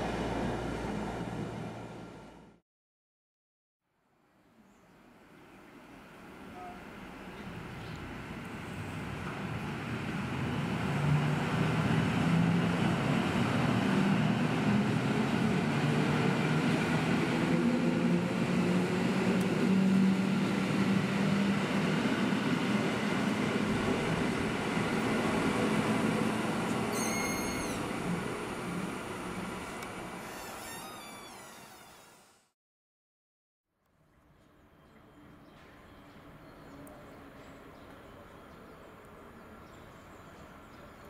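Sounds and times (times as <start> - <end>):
electric train passing: 5.9 - 32.1
train wheels on rail: 7.4 - 32.1.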